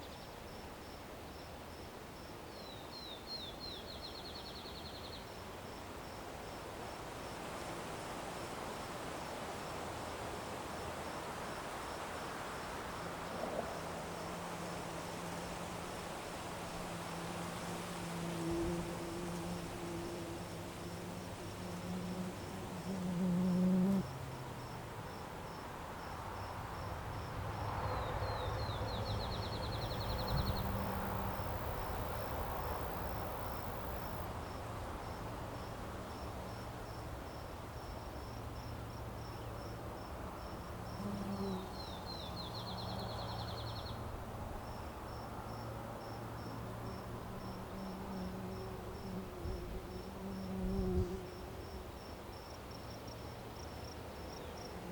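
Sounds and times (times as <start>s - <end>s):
crickets chirping: 0.0s - 54.9s.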